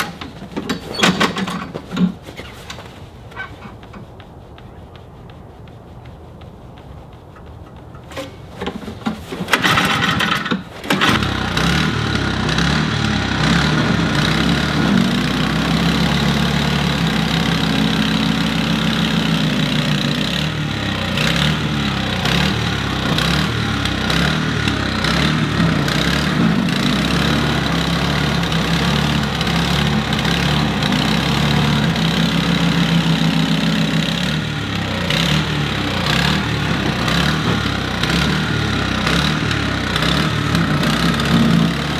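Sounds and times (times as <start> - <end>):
snow blower engine running unevenly: 0.0 - 2.8, 7.4 - 41.9
snow blower engine cranking: 0.0 - 4.2, 7.3 - 41.9.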